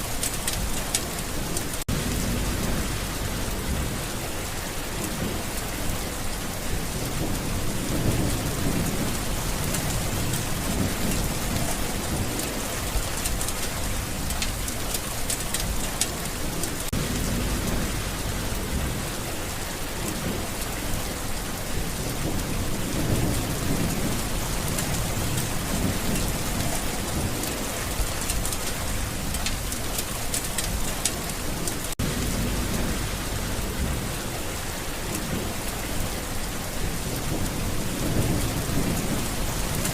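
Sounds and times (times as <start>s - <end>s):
heavy rain: 0.0s - 39.9s
thunder rumbling: 0.0s - 39.9s.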